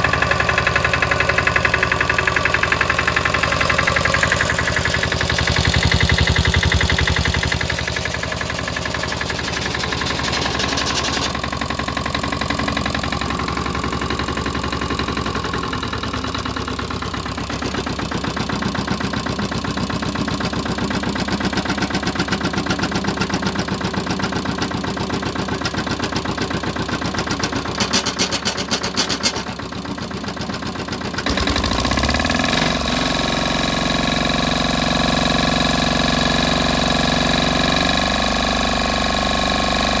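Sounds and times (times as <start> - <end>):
diesel tractor engine running: 0.0 - 40.0
sharp engine knocks: 9.2 - 11.4, 27.5 - 29.7.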